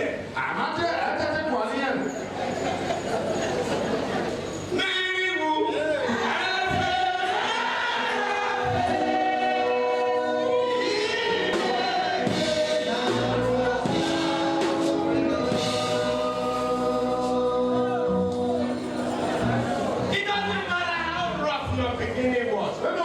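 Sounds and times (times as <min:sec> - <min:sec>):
choir singing held notes: 0:05.7 - 0:20.1.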